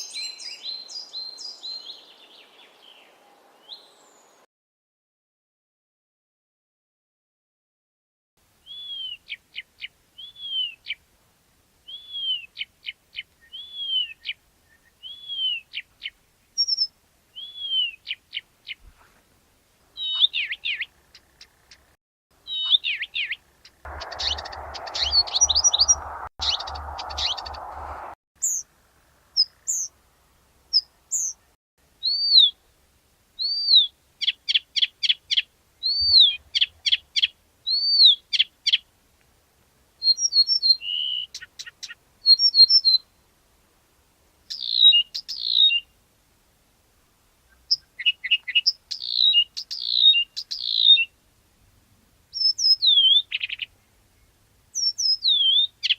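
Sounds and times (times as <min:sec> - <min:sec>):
reed warbler singing: 0:00.0 - 0:04.4, 0:20.0 - 0:28.7, 0:33.4 - 0:38.8, 0:44.5 - 0:46.0, 0:47.5 - 0:51.1, 0:52.3 - 0:55.9
steady hiss: 0:23.8 - 0:31.0.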